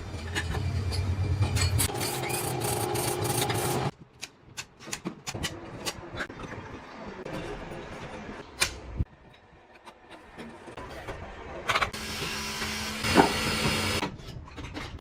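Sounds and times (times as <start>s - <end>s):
loud factory machine noise: 0.0s - 3.9s, 12.0s - 14.0s
sharp workshop clicks and knocks: 0.2s - 6.2s.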